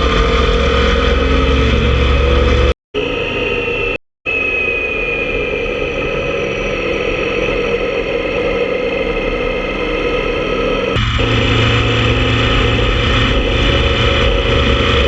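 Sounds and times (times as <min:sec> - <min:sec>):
road and wind noise: 0:00.0 - 0:03.9, 0:05.6 - 0:15.0
motorcycle engine running: 0:11.0 - 0:15.0.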